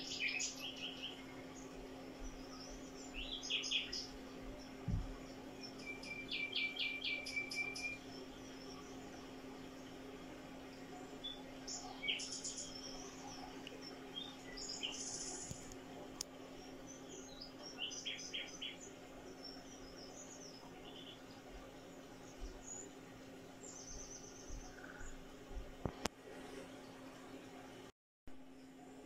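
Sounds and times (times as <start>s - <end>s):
small birds chirping and trilling: 0.0s - 25.4s
steady low hum: 0.0s - 29.0s.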